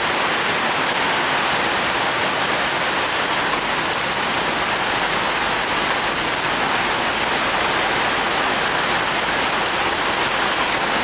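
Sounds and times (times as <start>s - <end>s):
heavy rain on foliage: 0.0s - 11.0s.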